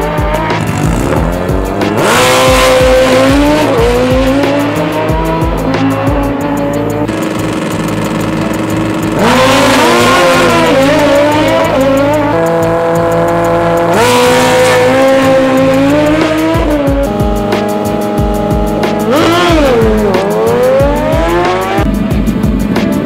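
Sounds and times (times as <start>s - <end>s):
racing engine at high revs: 0.0s - 23.0s.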